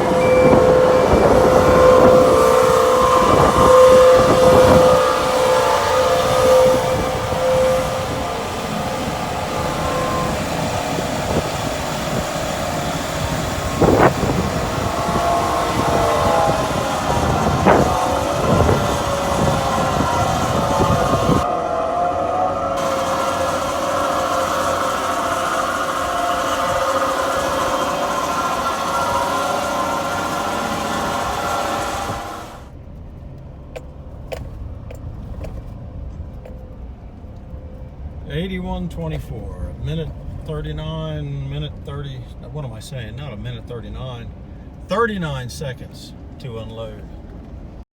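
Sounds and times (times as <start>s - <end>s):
farm machinery engine humming: 0.0s - 32.8s
farm machine unloading loudly: 22.8s - 32.7s.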